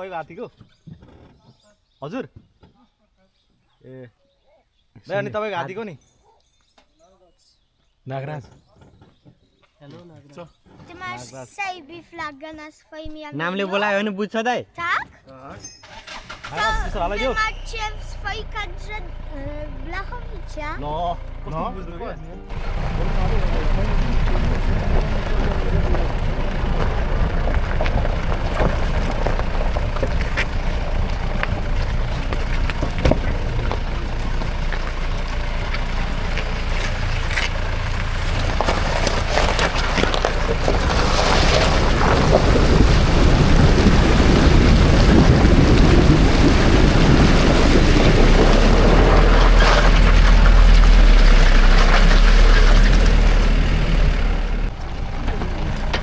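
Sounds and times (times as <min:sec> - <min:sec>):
wind buffeting microphone: 0:40.0 - 0:50.5.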